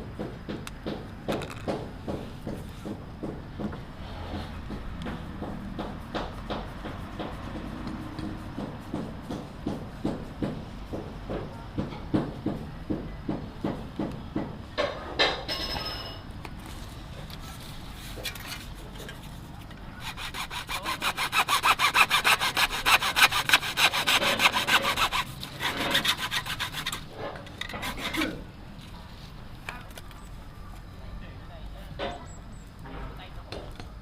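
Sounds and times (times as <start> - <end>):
hand saw cutting: 20.0 - 28.4.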